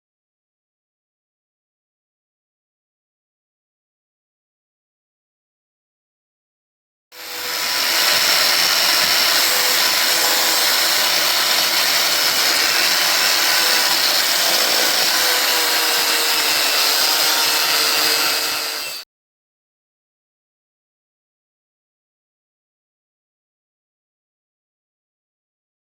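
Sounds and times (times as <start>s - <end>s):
power tool running: 7.2s - 19.0s.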